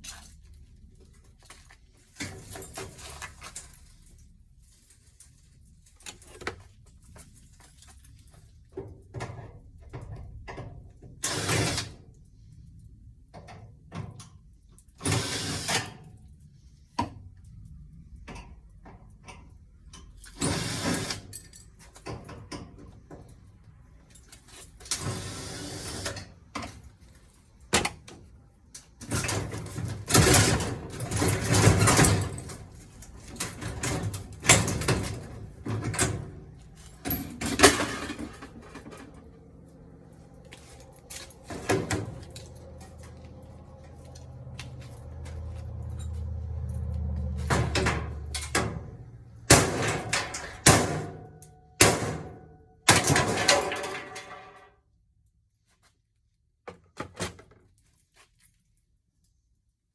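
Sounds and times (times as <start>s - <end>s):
metal clanks and scrapes: 28.7s - 54.7s.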